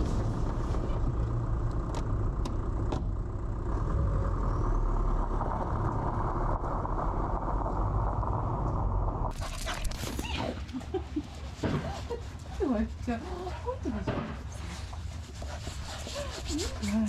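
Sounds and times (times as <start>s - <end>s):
truck engine running: 0.0s - 9.3s
road noise: 0.0s - 17.0s.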